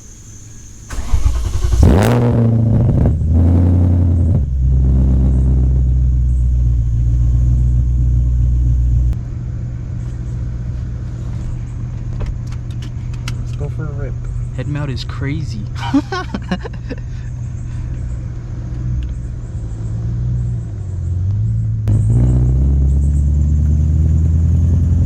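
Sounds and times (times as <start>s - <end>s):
car engine starting and idling: 0.0s - 25.0s
engine revving: 0.9s - 9.2s, 17.8s - 25.0s.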